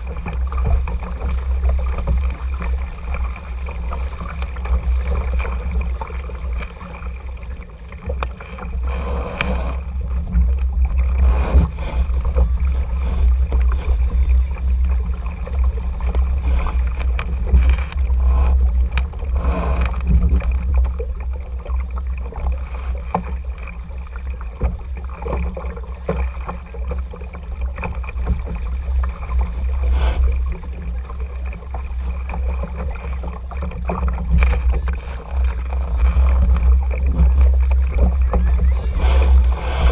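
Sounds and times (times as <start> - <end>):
water rushing along hull: 0.0 - 39.9
wind and water rumble: 0.0 - 39.9.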